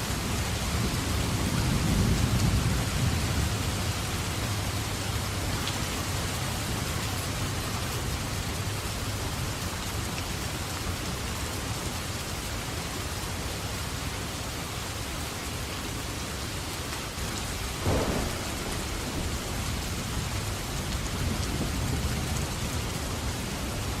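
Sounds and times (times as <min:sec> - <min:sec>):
steady rain falling: 0:00.0 - 0:24.0
thunder clap: 0:17.7 - 0:22.5
thunder rumbling: 0:17.7 - 0:23.9.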